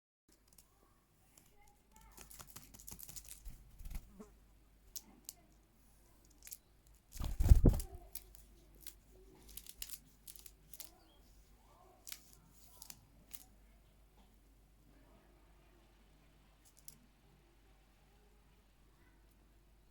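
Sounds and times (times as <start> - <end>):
pet bird clicks and taps: 1.4 - 3.6.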